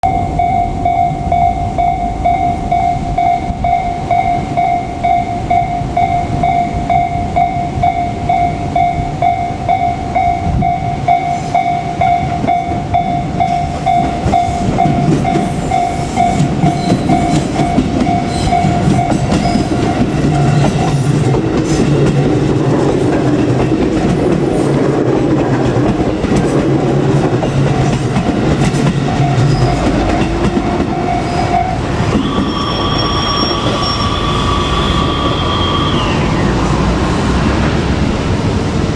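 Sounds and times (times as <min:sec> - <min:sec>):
level crossing warning bell: 0:00.0 - 0:22.6, 0:26.1 - 0:34.7
train passing: 0:00.0 - 0:38.9
wheels clacking over rail joints: 0:13.4 - 0:32.6.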